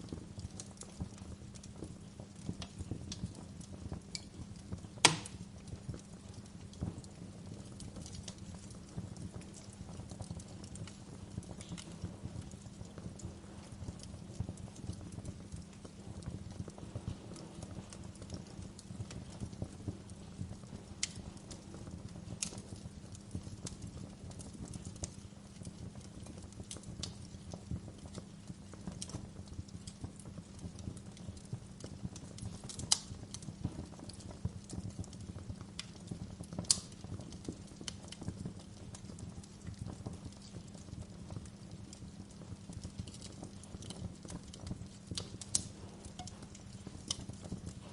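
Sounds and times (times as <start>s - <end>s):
wood fire crackling: 0.0s - 47.9s
low steady rumble: 8.2s - 31.5s, 38.9s - 47.9s.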